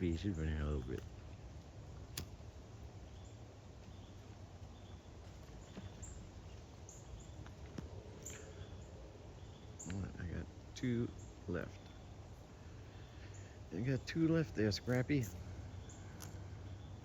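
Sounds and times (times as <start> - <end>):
sharp click: 2.1 - 2.4.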